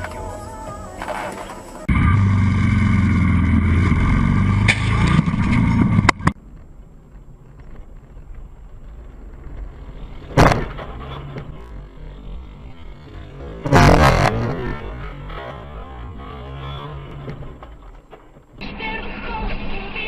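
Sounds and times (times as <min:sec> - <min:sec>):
vehicle engine running loudly: 0:01.0 - 0:06.4, 0:09.6 - 0:17.9.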